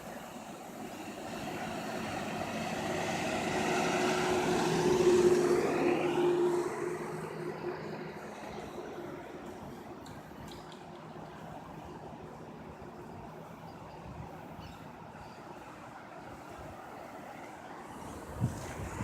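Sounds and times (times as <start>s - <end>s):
passing engine: 0.8s - 10.0s.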